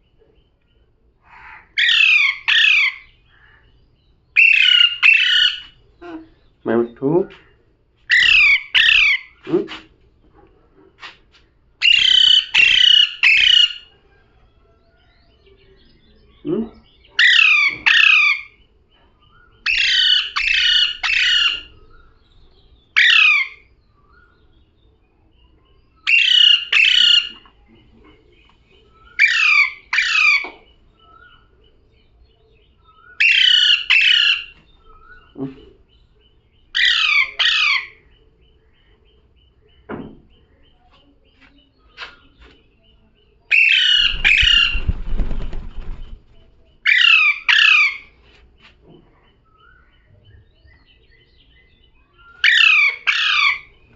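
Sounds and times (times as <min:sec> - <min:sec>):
parrot squawking: 0:01.6 - 0:03.1, 0:04.4 - 0:05.6, 0:08.1 - 0:09.4, 0:11.8 - 0:13.9, 0:19.7 - 0:21.7, 0:33.2 - 0:34.5, 0:36.8 - 0:38.0, 0:43.5 - 0:44.8, 0:46.9 - 0:48.1.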